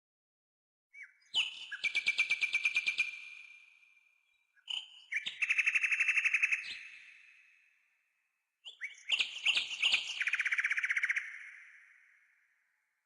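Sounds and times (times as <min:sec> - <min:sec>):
nightingale singing trills: 0:00.9 - 0:03.6, 0:04.2 - 0:07.3, 0:08.6 - 0:12.2.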